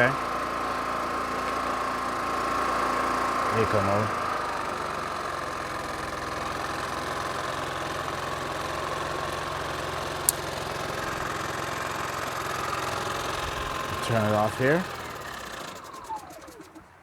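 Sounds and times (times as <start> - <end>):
generator engine humming: 0.0 - 17.0
sharp click: 10.3 - 10.6.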